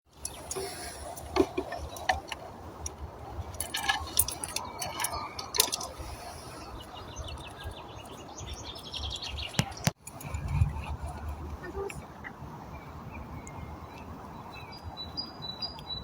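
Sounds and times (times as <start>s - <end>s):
birds chirping: 0.1s - 16.0s.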